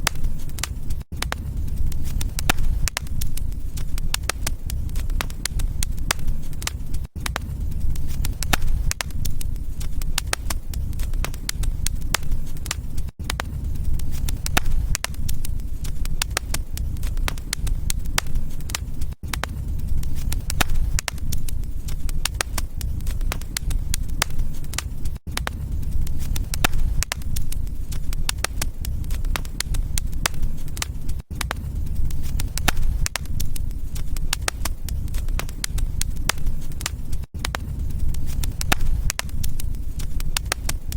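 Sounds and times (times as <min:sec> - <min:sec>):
low rumble: 0:00.0 - 0:40.9
wood fire crackling: 0:00.0 - 0:40.9.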